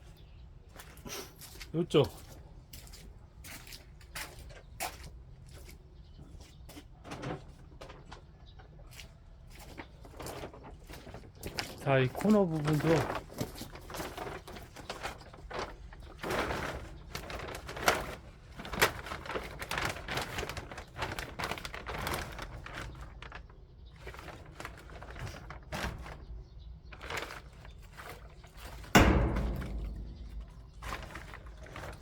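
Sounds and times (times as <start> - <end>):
loud thump: 29.0 - 32.0.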